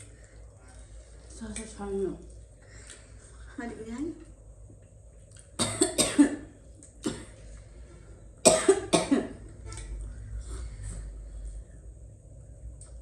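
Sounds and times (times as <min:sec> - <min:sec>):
person coughing: 0:05.6 - 0:07.4, 0:08.4 - 0:09.4.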